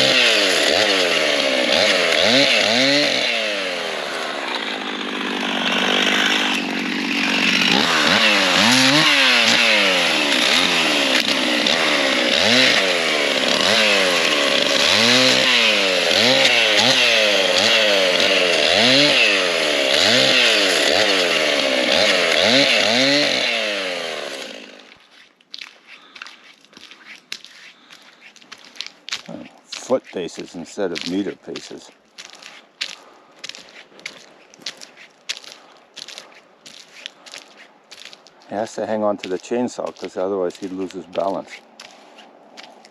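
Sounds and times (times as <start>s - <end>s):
chainsaw running hard: 0.0s - 25.0s, 39.2s - 41.6s
faint crunching and clicks: 24.9s - 42.9s.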